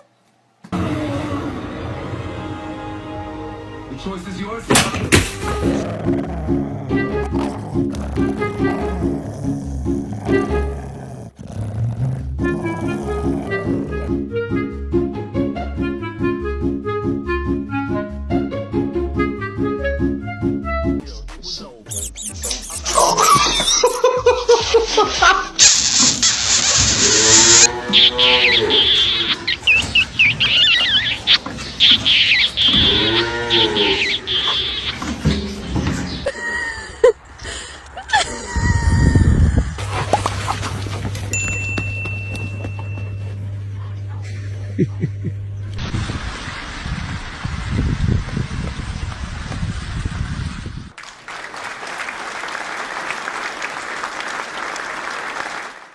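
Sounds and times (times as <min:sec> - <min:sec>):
high chirping: 0:21.9 - 0:24.2, 0:28.0 - 0:35.2
animal long drawn-out calls: 0:26.9 - 0:35.6
crowd applause: 0:51.0 - 0:55.9.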